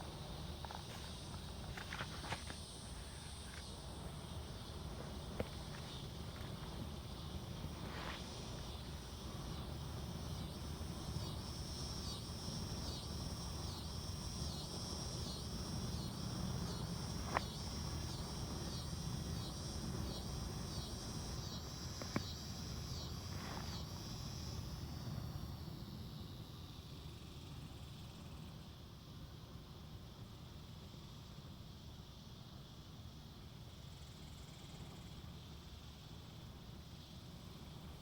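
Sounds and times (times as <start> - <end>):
low rush of wind: 0.0 - 27.2
insect pulsing chirp: 0.0 - 29.1.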